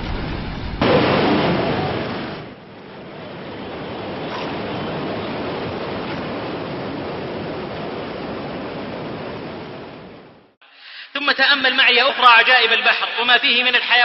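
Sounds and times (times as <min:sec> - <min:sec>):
ocean surf washing: 0:00.0 - 0:10.6.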